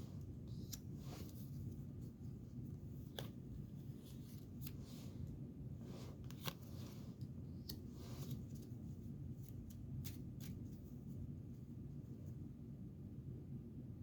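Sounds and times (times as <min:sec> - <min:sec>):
steady low hum: 0:00.0 - 0:14.0
cards clicking and rustling: 0:06.1 - 0:08.7.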